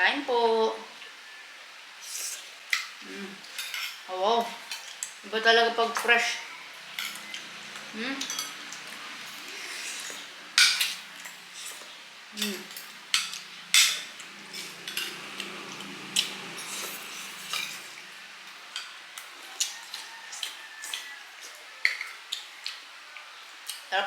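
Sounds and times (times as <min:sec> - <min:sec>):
spoons clinking on bowls: 0:03.5 - 0:04.0, 0:06.9 - 0:07.5, 0:08.2 - 0:11.8, 0:12.4 - 0:18.0.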